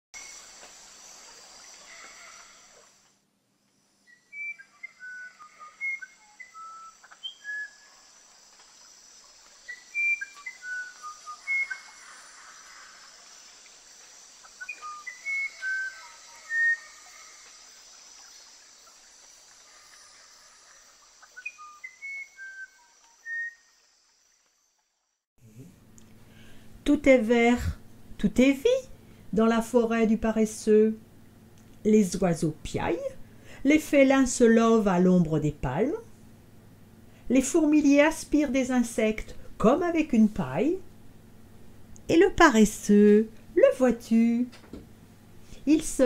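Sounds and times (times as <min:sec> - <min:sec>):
forest ambience hiss: 0:00.2 - 0:46.0
bird singing whistled notes: 0:04.0 - 0:08.1, 0:09.6 - 0:12.5, 0:14.4 - 0:17.4, 0:21.2 - 0:23.7.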